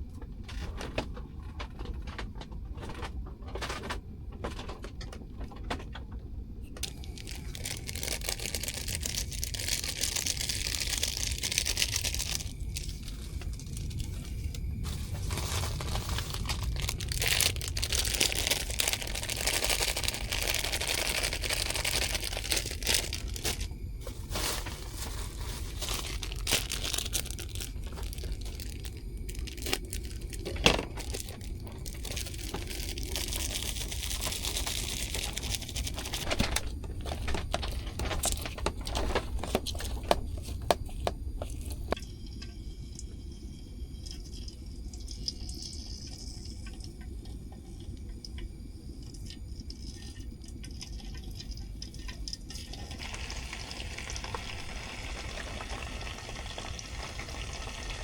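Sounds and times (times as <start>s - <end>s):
low rumble: 6.4s - 44.0s
plastic crinkling and tearing: 6.8s - 42.0s, 52.8s - 56.8s.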